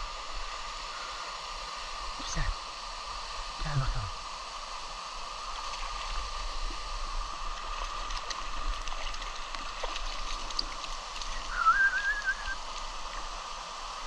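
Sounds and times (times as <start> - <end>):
mountain stream rushing: 0.0 - 14.0
warbling whistle-like tone: 11.3 - 12.6.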